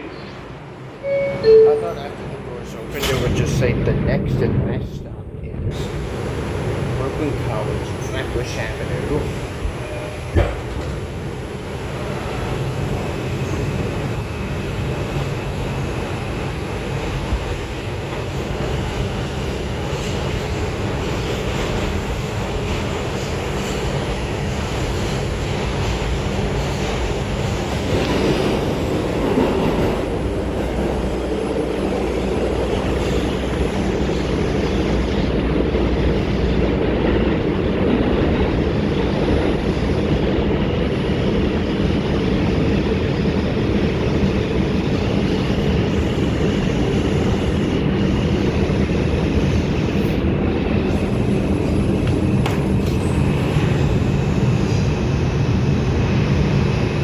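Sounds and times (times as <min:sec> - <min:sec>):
subway wheels rumbling on rail: 0:00.0 - 0:57.0.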